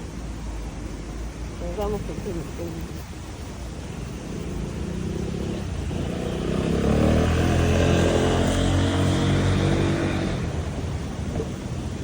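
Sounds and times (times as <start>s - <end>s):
vehicle driving past: 4.2s - 11.5s.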